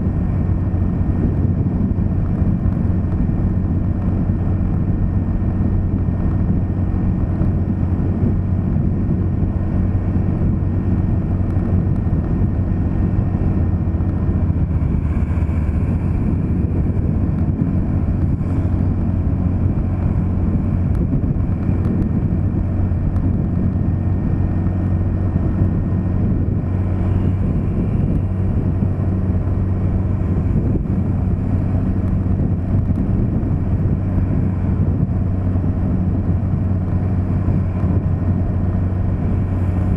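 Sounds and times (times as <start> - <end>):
road noise: 0.0 - 39.9
vehicle engine hum: 0.0 - 39.9.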